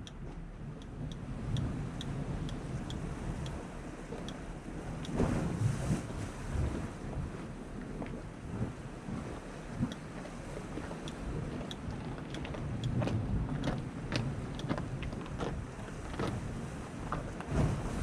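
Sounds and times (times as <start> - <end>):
light ticks: 0.0 - 3.6, 4.2 - 4.4, 5.0 - 5.2, 9.9 - 10.3, 10.9 - 16.4
sea wash: 0.0 - 18.0
wind buffeting microphone: 0.0 - 18.0.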